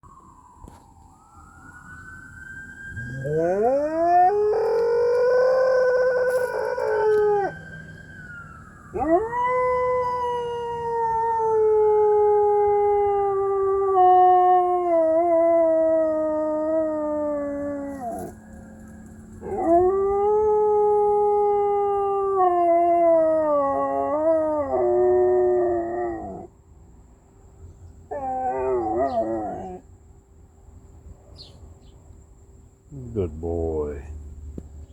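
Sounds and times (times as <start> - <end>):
dog howling: 3.0 - 7.6, 8.9 - 18.4, 19.4 - 26.5, 28.1 - 29.8.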